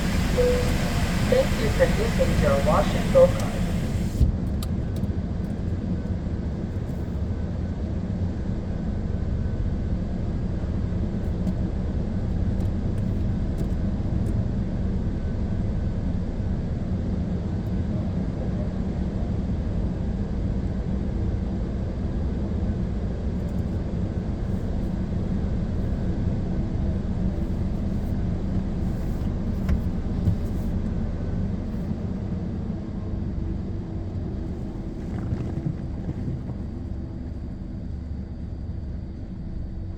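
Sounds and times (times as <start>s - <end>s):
car wash machinery rumbling: 0.0s - 4.3s.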